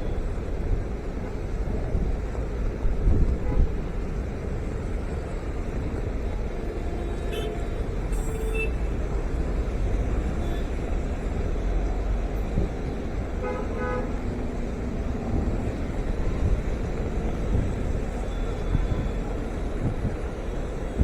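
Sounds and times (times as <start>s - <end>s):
road traffic noise: 0.0s - 21.0s
car horn toots: 7.3s - 8.8s.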